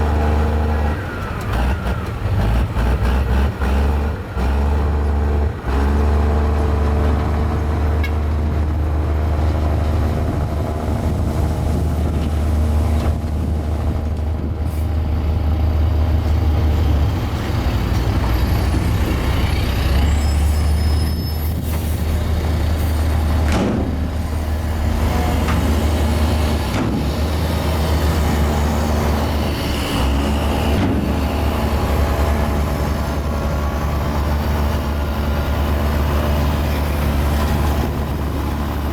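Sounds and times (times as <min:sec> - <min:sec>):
bulldozer diesel engine under load: 0:00.0 - 0:38.9
brief high squeals: 0:20.0 - 0:21.7.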